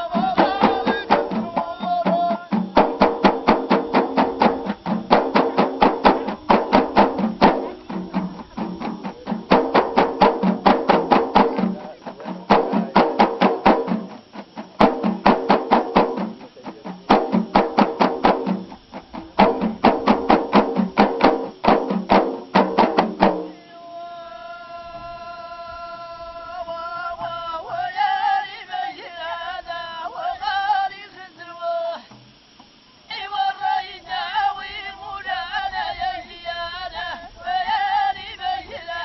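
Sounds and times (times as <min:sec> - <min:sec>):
frame drums beating: 0:00.0 - 0:23.6
person singing long note: 0:23.4 - 0:28.4.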